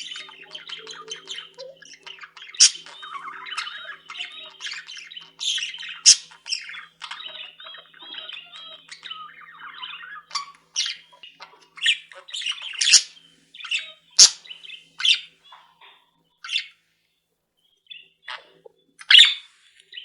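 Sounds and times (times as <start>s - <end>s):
bird call: 0.0s - 15.8s
budgerigars chattering and squawking: 0.0s - 16.8s, 18.2s - 20.0s
pet birds chirping: 0.0s - 16.8s, 17.6s - 20.0s.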